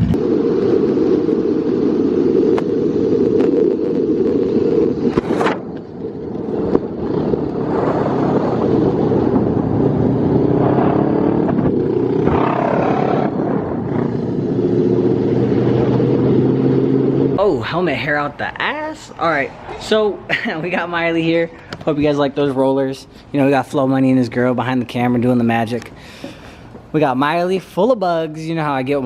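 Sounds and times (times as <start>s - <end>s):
motorcycle engine running loud: 6.8s - 17.4s.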